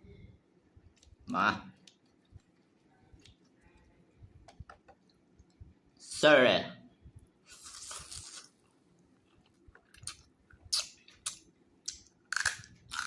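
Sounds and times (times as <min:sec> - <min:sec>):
wet chewing smacks and crunches: 0:01.8 - 0:03.6, 0:09.2 - 0:13.0
noisy mouthful of noodles: 0:07.4 - 0:08.6, 0:10.0 - 0:11.4.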